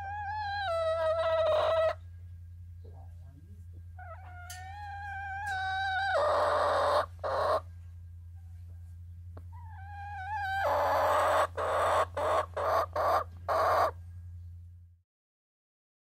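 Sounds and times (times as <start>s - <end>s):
drawn-out pitched hen call: 0.0s - 2.0s, 4.0s - 7.7s, 9.4s - 14.0s
hens squawking: 0.0s - 2.0s, 4.0s - 7.7s, 9.4s - 14.0s
steady low hum: 0.0s - 15.0s.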